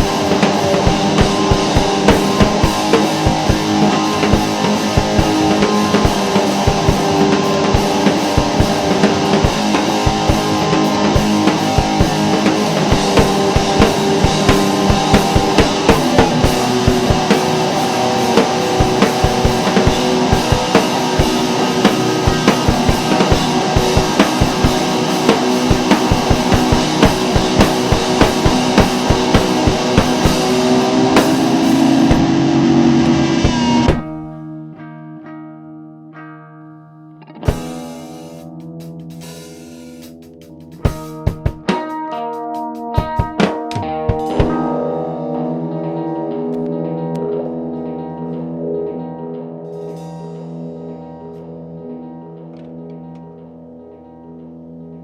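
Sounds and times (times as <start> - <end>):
drum kit hitting steadily: 0.0 - 34.4, 37.5 - 46.7
rock band playing: 0.0 - 34.8, 37.2 - 55.0
electric guitars: 0.0 - 55.0
guitar ringing: 0.0 - 55.0.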